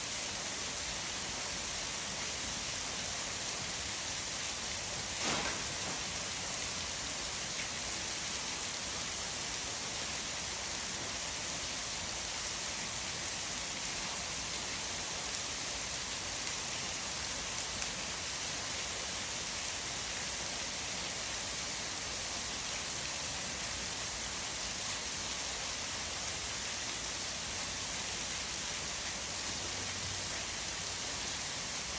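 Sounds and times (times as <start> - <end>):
waterfall hiss: 0.0 - 31.9.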